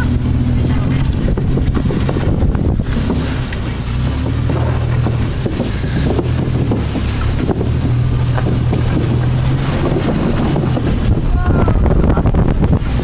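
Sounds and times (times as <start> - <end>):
boat motor drone: 0.0 - 13.0
wind buffeting microphone: 0.0 - 13.0.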